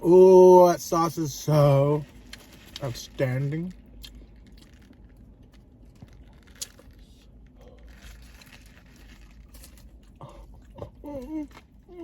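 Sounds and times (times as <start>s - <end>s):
paper wrapper crinkling: 2.0s - 10.2s
sandwich chewing: 3.4s - 12.0s.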